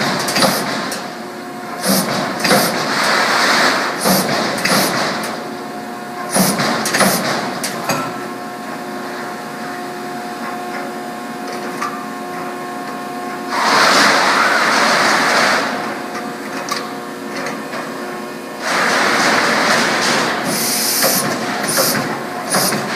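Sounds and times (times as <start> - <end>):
loud hiss: 20.5 - 22.8.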